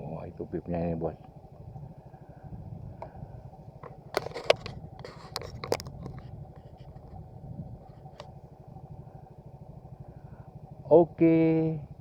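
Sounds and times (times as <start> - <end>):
motorcycle engine rumbling: 0.0 - 12.0
sharp knocks and rattles: 3.8 - 7.2.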